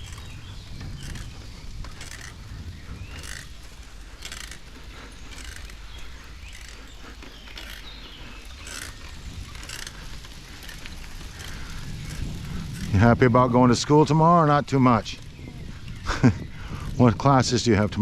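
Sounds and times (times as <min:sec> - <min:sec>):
bicycle freewheel ticking: 0:00.0 - 0:13.4
tyres rumbling on dirt: 0:00.0 - 0:18.0
wind on microphone: 0:00.0 - 0:18.0.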